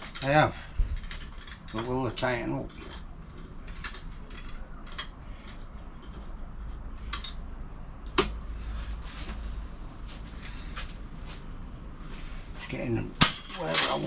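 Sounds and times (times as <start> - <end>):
metal clamps clicking and clinking: 0.0 - 7.5, 13.2 - 14.0.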